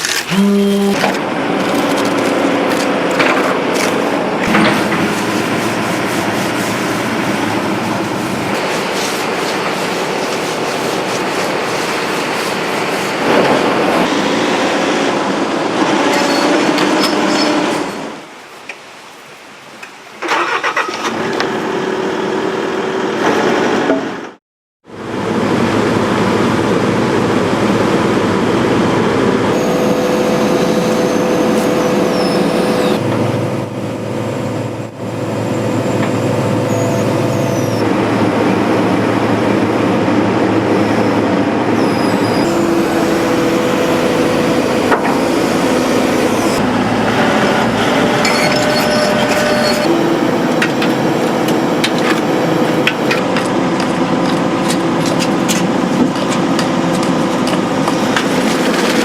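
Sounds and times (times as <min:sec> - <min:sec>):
excavator diesel engine: 0:00.0 - 0:18.3, 0:20.2 - 0:59.0
high-pitched squeals: 0:29.6 - 0:33.1, 0:35.4 - 0:37.9, 0:40.6 - 0:50.5.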